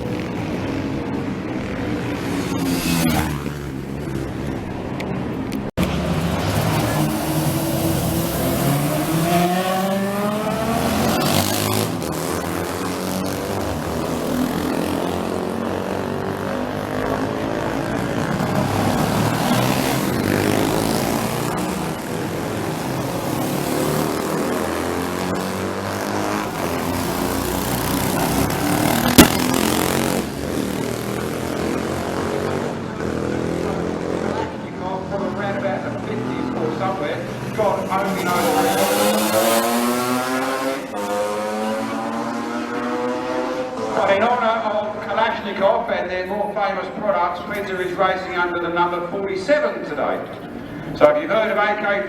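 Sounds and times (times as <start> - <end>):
racing motorcycle engines revving: 0.0 - 52.0
sharp crack: 29.0 - 29.9.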